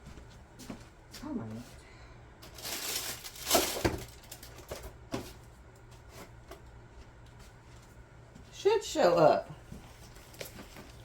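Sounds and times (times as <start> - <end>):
rustling: 2.5 - 4.6.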